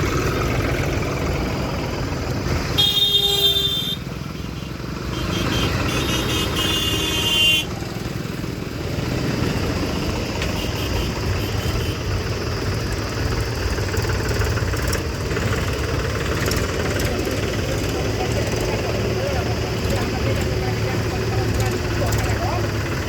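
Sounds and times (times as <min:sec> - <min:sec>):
tractor engines idling: 0:00.0 - 0:23.0
vehicle horn: 0:02.8 - 0:07.8, 0:10.4 - 0:12.1.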